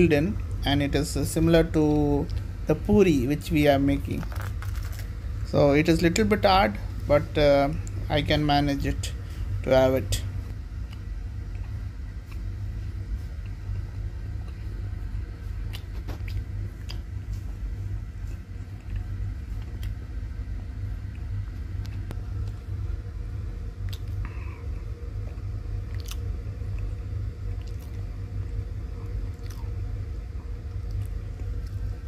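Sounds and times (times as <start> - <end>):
steady low rumble: 0.0 - 32.0
man chewing crisp food: 10.8 - 20.1, 23.8 - 24.4, 25.2 - 29.9, 30.5 - 32.0.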